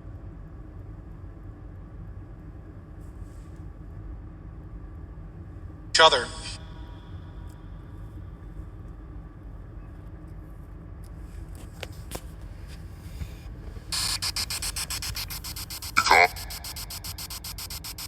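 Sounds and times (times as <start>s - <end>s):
chopping radio static hiss: 13.9s - 18.0s.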